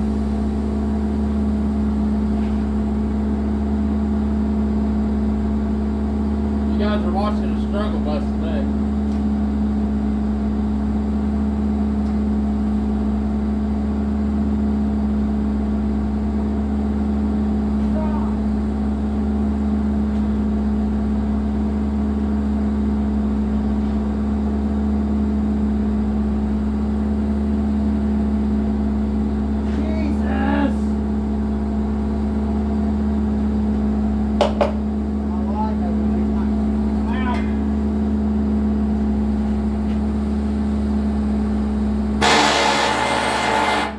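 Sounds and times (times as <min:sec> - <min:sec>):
excavator diesel engine droning: 0:00.0 - 0:09.0, 0:20.6 - 0:34.2, 0:35.0 - 0:43.9.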